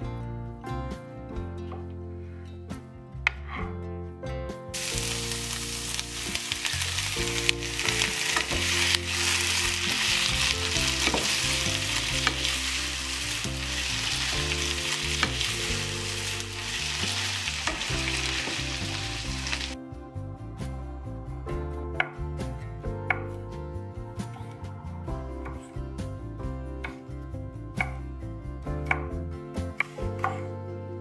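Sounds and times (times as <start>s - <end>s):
background music: 0.0s - 31.0s
food sizzling in a frying pan: 4.8s - 19.8s.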